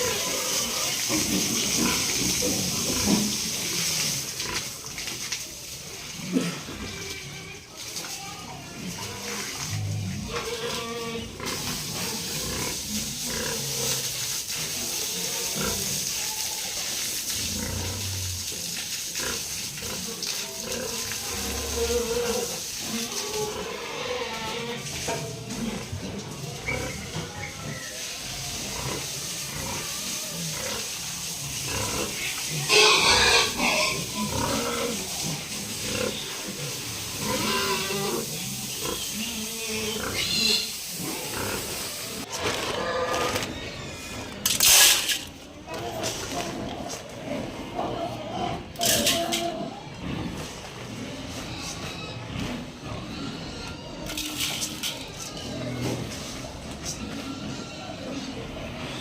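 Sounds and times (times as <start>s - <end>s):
steady hiss: 0.0s - 42.3s
pigs grunting: 6.0s - 7.8s, 8.6s - 16.4s, 17.4s - 44.8s, 45.4s - 59.0s.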